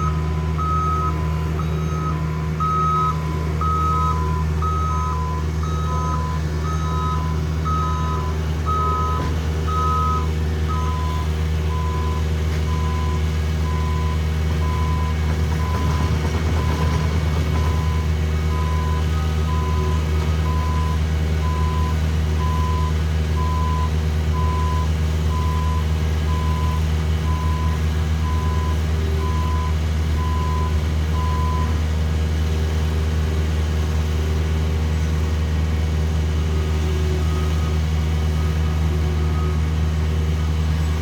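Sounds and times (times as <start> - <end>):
fainter higher backup alarm: 0.0 - 15.1
backup alarm beeping: 0.0 - 31.7
diesel engines running: 0.0 - 41.0.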